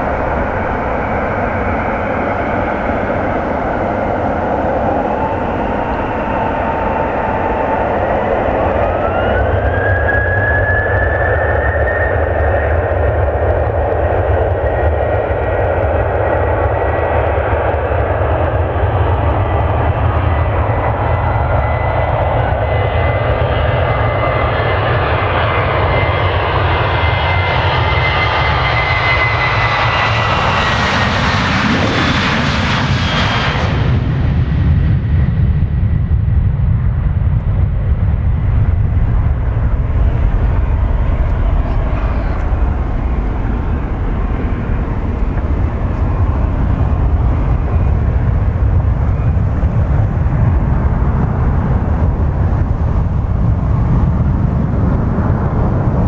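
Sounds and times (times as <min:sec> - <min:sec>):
deep rumble: 0:00.0 - 0:23.5, 0:29.1 - 0:56.0
jet engines whining and roaring: 0:00.0 - 0:56.0.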